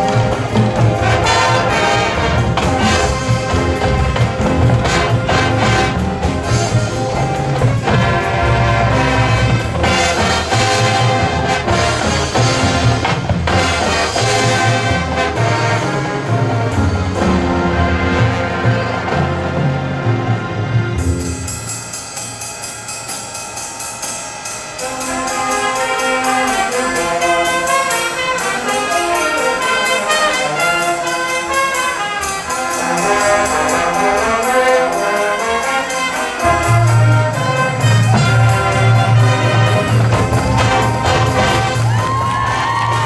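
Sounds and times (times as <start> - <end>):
heavy low brass: 0.0 - 21.6, 24.8 - 43.0
trumpets and trombones: 0.0 - 22.0, 24.6 - 43.0
cymbal beat: 21.0 - 43.0.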